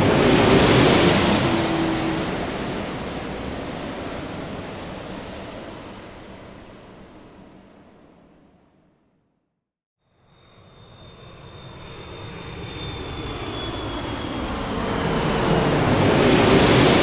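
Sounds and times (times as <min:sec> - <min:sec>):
high-pitched engine whine: 0:00.0 - 0:06.5, 0:10.1 - 0:17.0
airliner engine rush: 0:00.0 - 0:08.6, 0:10.4 - 0:17.0.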